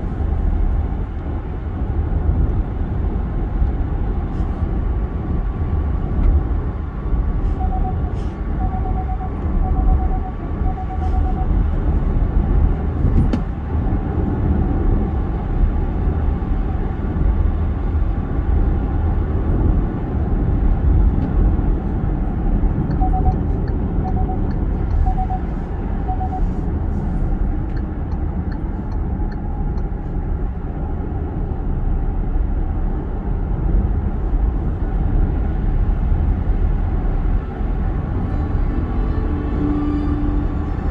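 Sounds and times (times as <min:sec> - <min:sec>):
tyre and road noise: 0:00.0 - 0:40.9
short beeps in pairs: 0:07.5 - 0:11.6, 0:22.9 - 0:26.7.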